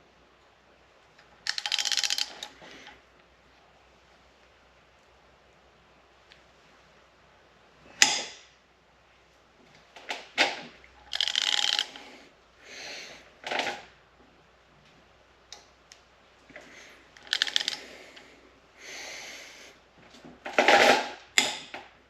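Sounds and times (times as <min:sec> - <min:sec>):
ratchet wrench clicking: 0:01.4 - 0:02.5, 0:11.1 - 0:12.0, 0:17.2 - 0:17.8.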